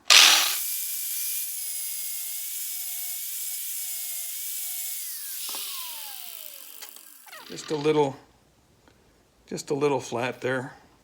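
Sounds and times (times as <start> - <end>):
electric grinder grinding metal: 0.0 - 8.0.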